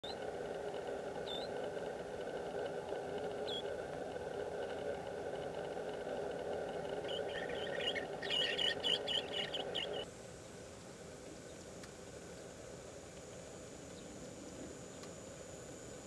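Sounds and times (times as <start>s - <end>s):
steady background hum: 0.0s - 16.0s
small bird chirping: 1.2s - 1.5s, 3.4s - 3.7s, 7.0s - 10.1s.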